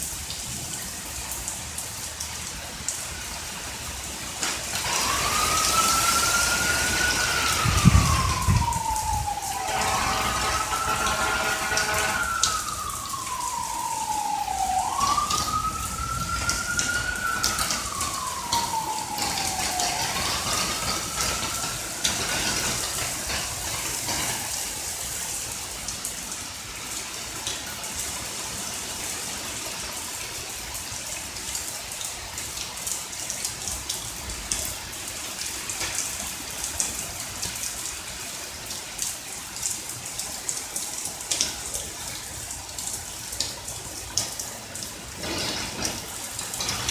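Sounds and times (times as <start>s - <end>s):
steady rain: 0.0s - 46.9s
water dripping: 0.0s - 46.9s
siren wailing: 3.8s - 25.4s, 44.8s - 46.9s.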